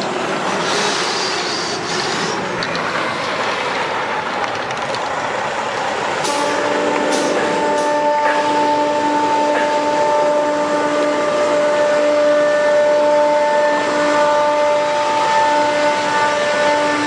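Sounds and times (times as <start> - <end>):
truck running rushing noise: 0.0 - 7.7.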